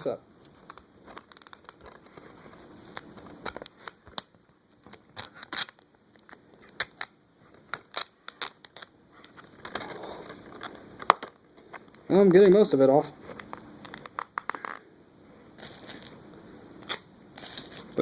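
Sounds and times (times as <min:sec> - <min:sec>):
plastic clicks and crinkles: 0:00.4 - 0:12.7
tape peeling off plastic case: 0:00.5 - 0:11.2.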